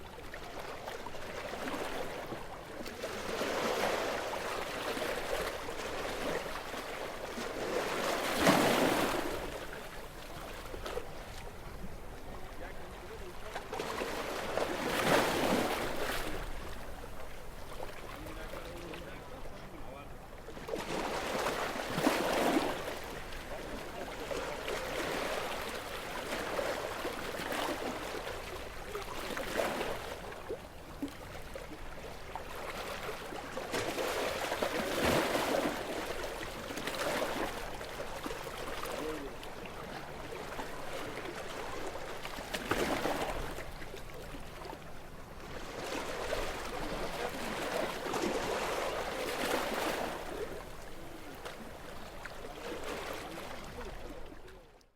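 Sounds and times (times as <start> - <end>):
sea waves washing on shore: 0.0 - 54.6.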